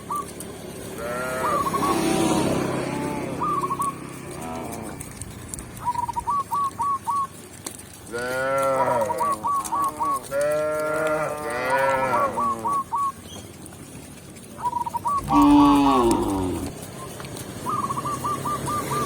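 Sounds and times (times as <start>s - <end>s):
cow mooing: 1.0s - 3.3s, 8.2s - 9.2s, 10.3s - 12.6s, 15.2s - 16.8s.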